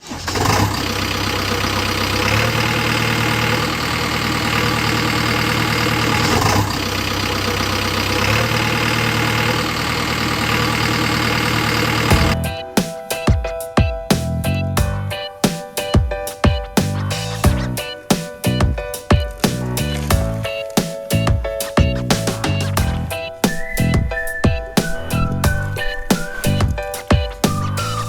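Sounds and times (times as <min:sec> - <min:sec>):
heavy diesel engine running: 0:00.0 - 0:12.7, 0:19.5 - 0:24.3
music: 0:12.1 - 0:28.0.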